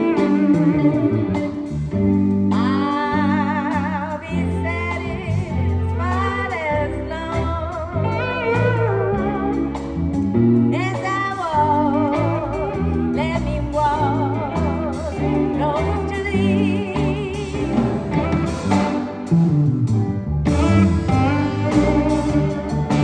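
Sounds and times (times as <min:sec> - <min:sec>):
bass: 0:00.0 - 0:23.0
drums: 0:00.0 - 0:23.0
gliding steel guitar lead: 0:00.0 - 0:23.0
person singing: 0:02.5 - 0:09.6, 0:10.7 - 0:19.3, 0:20.5 - 0:23.0.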